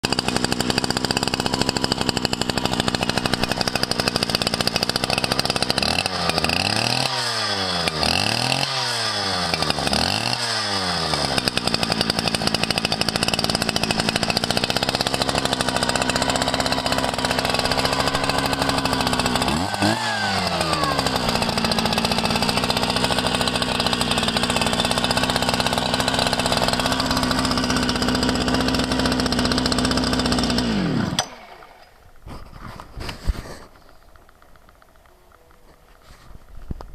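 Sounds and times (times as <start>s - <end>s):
engine cutter running and revving: 0.0s - 31.7s.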